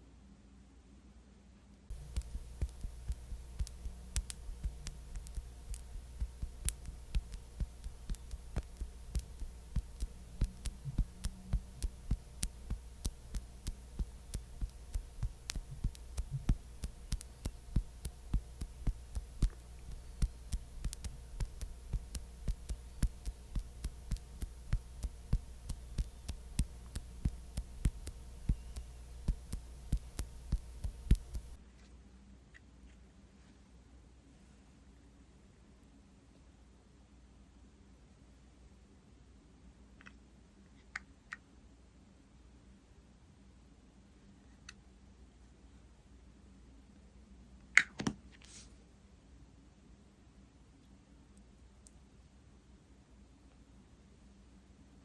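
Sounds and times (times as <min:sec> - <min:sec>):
steady low hum: 0:00.0 - 0:55.0
light tapping: 0:01.9 - 0:31.6.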